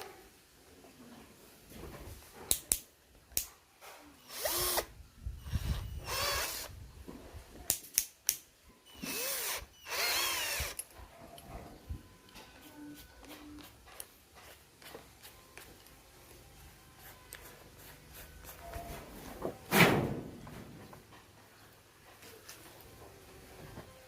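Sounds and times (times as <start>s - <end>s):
cordless drill motor whine: 4.2s - 6.7s, 8.9s - 10.8s
drill clicks: 9.0s - 10.8s.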